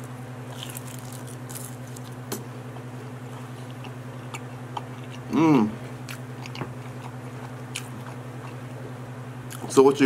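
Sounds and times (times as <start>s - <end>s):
steady low hum: 0.0s - 10.0s
chewing with mouth clicks: 0.5s - 5.4s, 6.0s - 8.9s, 9.5s - 9.7s.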